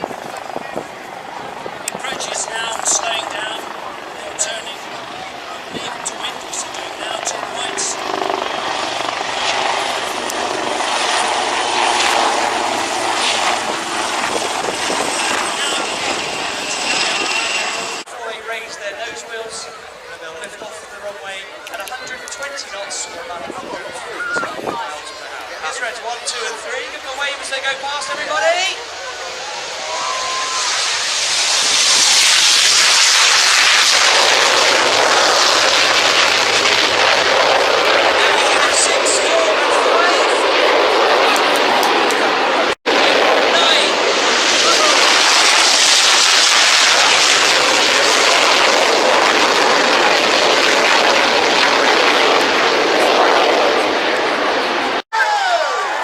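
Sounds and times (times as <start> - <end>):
aircraft flying by: 0.0 - 55.0.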